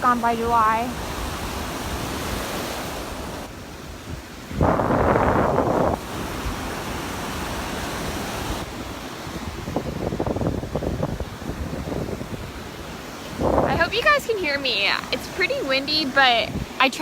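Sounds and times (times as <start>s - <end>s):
surf washing on shore: 0.0s - 17.0s
wind buffeting microphone: 0.0s - 17.0s.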